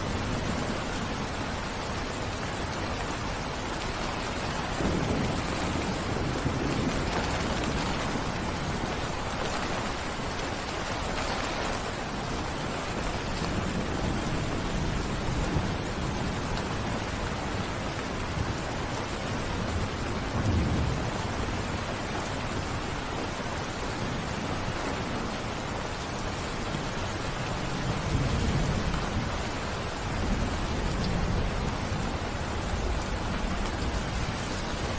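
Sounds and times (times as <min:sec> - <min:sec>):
heavy rain: 0:00.0 - 0:34.9
rolling thunder: 0:04.6 - 0:10.4.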